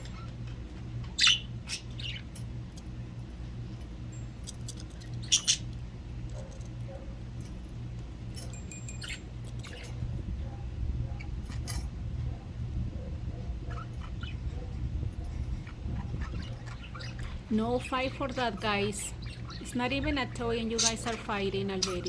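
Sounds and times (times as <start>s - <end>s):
budgerigars chirping and squawking: 0.0s - 2.9s, 4.8s - 7.1s, 8.9s - 11.9s, 13.3s - 22.0s
steady low hum: 0.0s - 22.0s.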